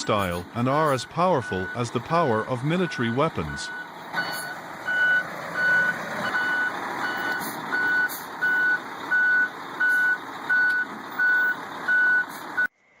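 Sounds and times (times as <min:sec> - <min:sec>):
truck reversing alarm beeping: 0:00.0 - 0:12.7
vehicle noise: 0:00.0 - 0:13.0.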